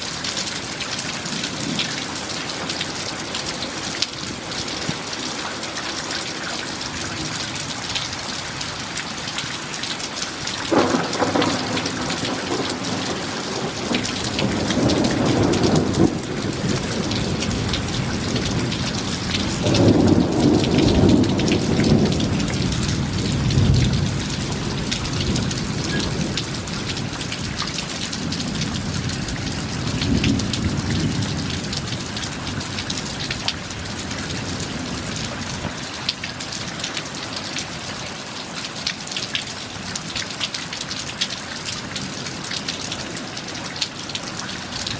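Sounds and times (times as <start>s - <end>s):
heavy rain: 0.0s - 44.9s
thunder cracking and rumbling: 10.7s - 35.9s.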